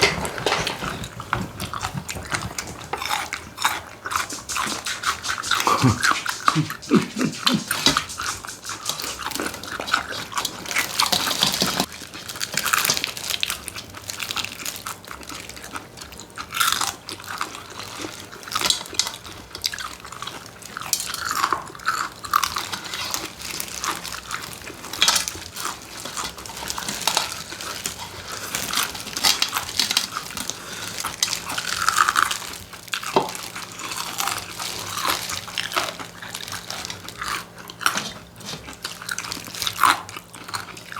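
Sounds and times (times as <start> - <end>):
chewing and crunching: 0.0 - 40.9
wet mouth clicks: 2.6 - 10.4.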